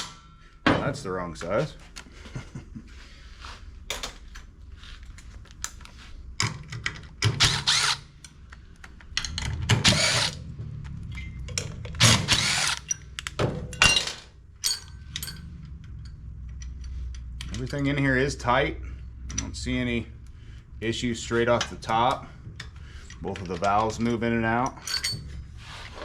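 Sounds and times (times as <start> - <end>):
clicks of tools and parts: 3.9 - 18.0, 19.2 - 20.3, 21.5 - 26.0
cordless power tool whirring: 7.4 - 8.0, 9.9 - 10.4, 12.0 - 12.9.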